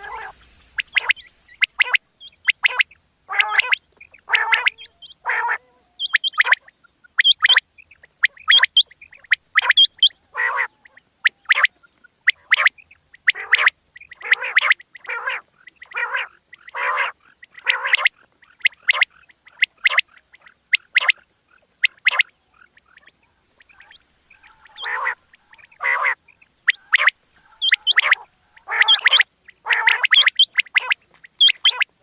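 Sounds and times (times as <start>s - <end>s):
quail calling: 0.0s - 32.0s.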